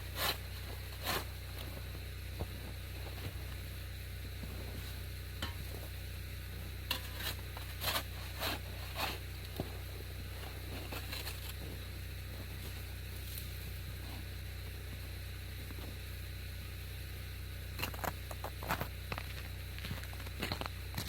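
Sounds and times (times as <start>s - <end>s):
snow shovel scraping snow: 0.0s - 3.5s, 6.5s - 14.3s
steady low hum: 0.0s - 21.0s.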